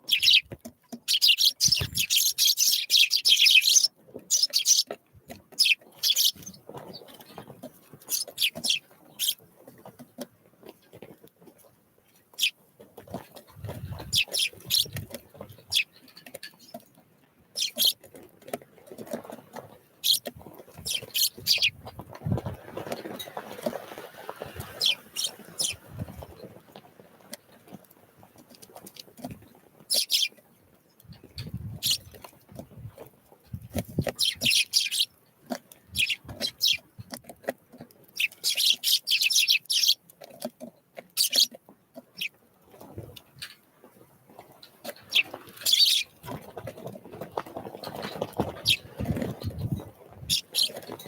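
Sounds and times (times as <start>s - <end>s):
songbirds high call notes: 0.0s - 4.9s, 5.6s - 6.6s, 8.1s - 9.4s, 14.0s - 15.0s, 15.6s - 15.9s, 17.6s - 18.0s, 20.9s - 21.8s, 24.7s - 25.9s, 29.9s - 30.4s, 34.2s - 35.1s, 36.0s - 36.8s, 38.2s - 40.0s, 41.2s - 41.5s, 45.1s - 46.1s, 50.3s - 50.8s
soft pattering and rustling: 4.0s - 17.2s, 17.9s - 34.4s, 40.1s - 51.0s.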